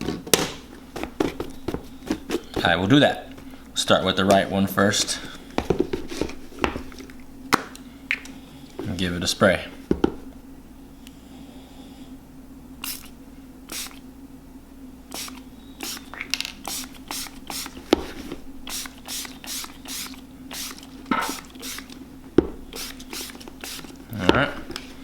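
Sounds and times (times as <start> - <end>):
spray bottle hissing: 12.8 - 14.0, 15.1 - 17.8, 18.6 - 22.0, 22.6 - 24.0.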